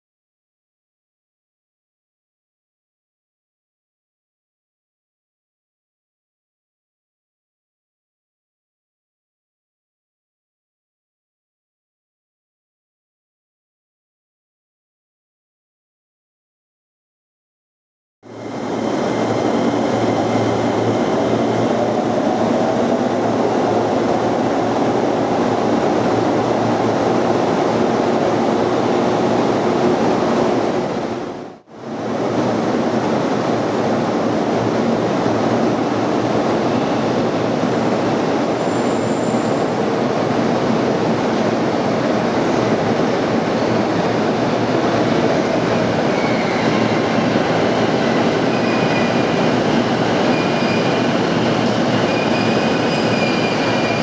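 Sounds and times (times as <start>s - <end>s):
faint high squeals: 46.1s - 47.1s, 50.2s - 51.2s, 52.0s - 54.0s.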